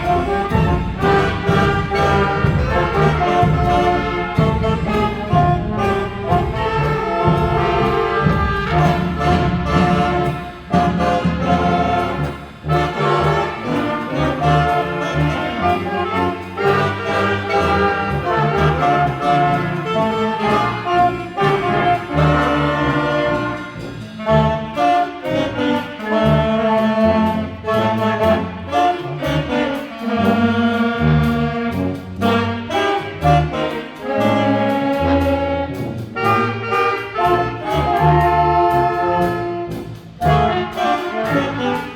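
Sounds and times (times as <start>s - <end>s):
orchestral brass music: 0.0s - 41.9s.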